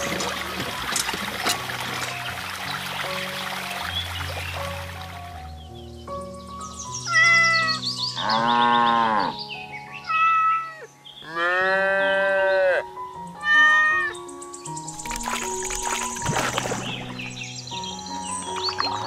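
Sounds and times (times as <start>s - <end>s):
light background music: 0.0s - 19.0s
cat meowing: 7.1s - 7.8s, 10.1s - 10.9s, 13.4s - 14.2s.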